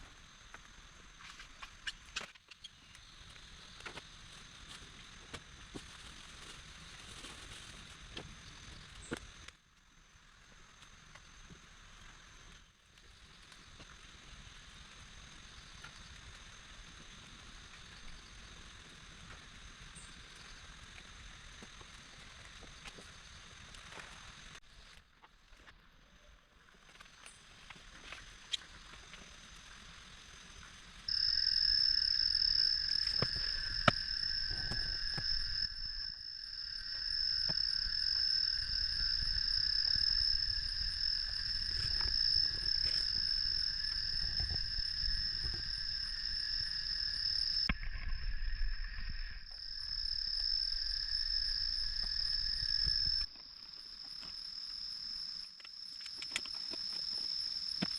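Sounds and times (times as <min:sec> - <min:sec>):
shrill insect chorus: 0:26.6 - 0:57.9.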